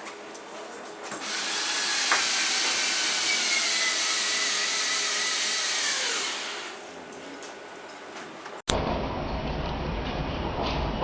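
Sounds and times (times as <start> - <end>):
power tool motor whining: 1.2 - 6.8.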